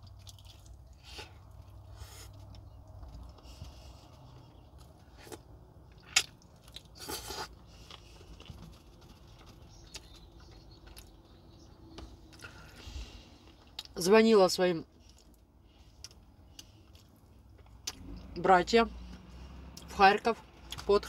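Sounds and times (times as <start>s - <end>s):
wet chewing and smacking: 0.0s - 14.0s, 14.9s - 18.3s.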